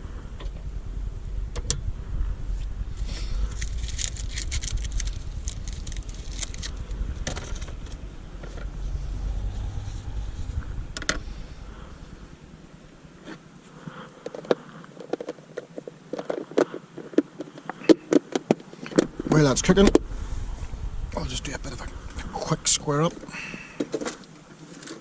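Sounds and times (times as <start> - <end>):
low rumble: 0.0 - 13.8, 18.9 - 24.4.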